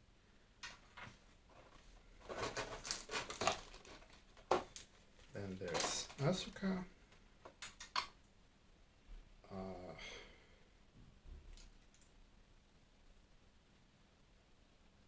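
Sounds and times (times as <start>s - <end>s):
plastic parts clicking: 0.6s - 6.6s, 7.4s - 8.2s.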